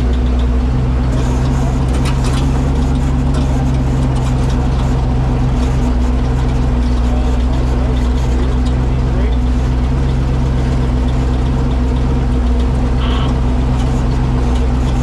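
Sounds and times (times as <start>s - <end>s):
knocks and rattles: 0.0s - 15.0s
truck engine running at low revs: 0.0s - 15.0s.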